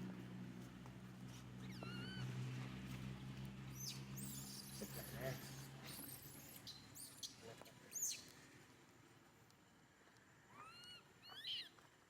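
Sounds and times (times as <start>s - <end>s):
baby monkey high-pitched calls: 10.5s - 11.7s.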